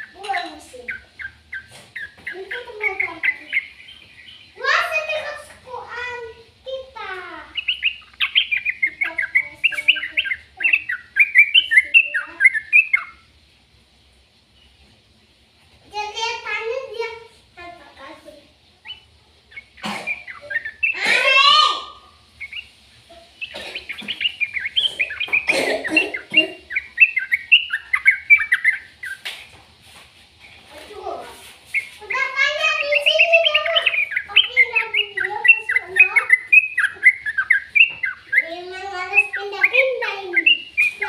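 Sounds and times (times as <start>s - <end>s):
bird chirping: 0.0s - 13.4s, 16.0s - 41.0s.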